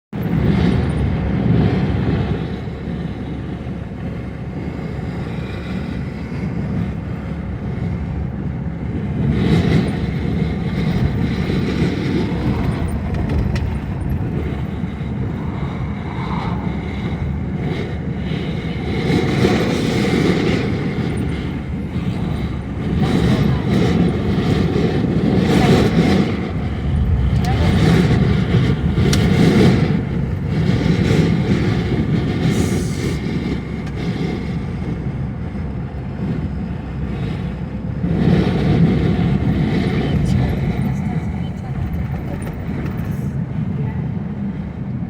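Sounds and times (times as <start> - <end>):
gusty wind buffeting microphone: 0.1 - 45.0.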